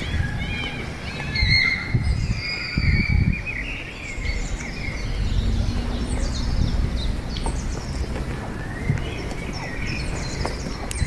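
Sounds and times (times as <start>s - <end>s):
small birds chirping: 0.0s - 11.0s
steady low rumble: 4.0s - 11.0s.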